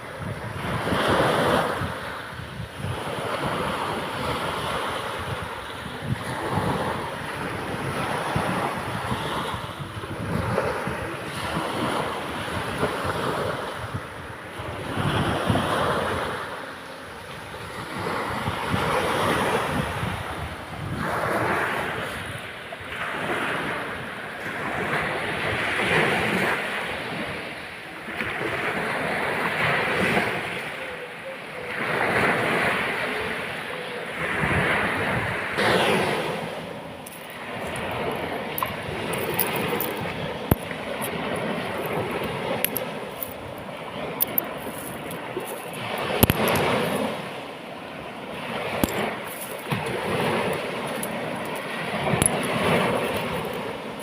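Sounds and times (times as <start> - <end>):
sea waves breaking on beach: 0.0 - 54.0.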